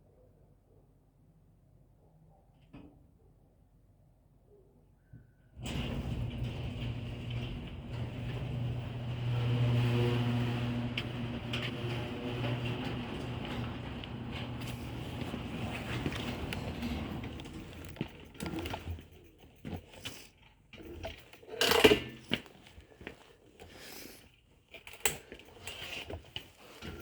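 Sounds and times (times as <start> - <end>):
electric bike motor hum: 5.6 - 21.3
knocks and rattles from handling: 10.8 - 24.0, 24.7 - 27.0.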